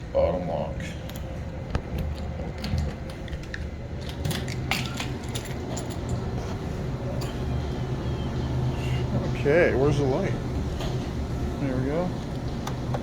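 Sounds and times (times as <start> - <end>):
steady low hum: 0.0 - 13.0
keys jangling: 2.1 - 6.5.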